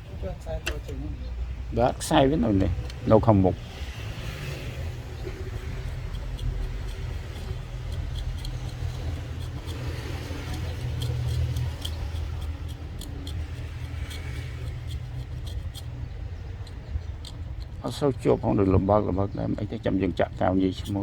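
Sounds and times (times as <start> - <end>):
light clicks and ticks: 3.8 - 18.8.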